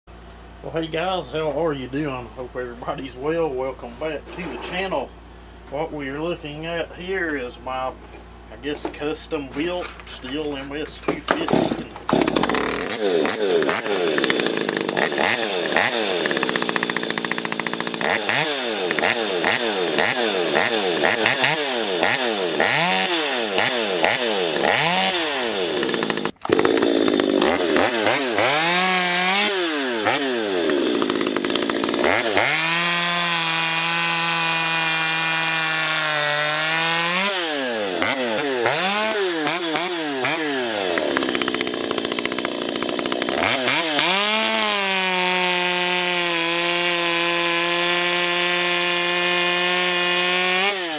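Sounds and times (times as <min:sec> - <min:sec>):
chainsaw revving: 0:11.3 - 0:50.9.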